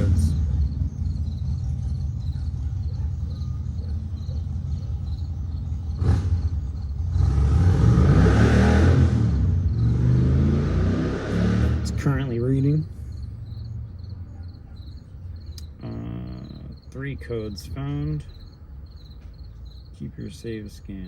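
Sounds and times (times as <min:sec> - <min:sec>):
steady low rumble: 0:00.0 - 0:07.2
crickets chirping: 0:00.0 - 0:21.0
car passing by: 0:06.0 - 0:12.2.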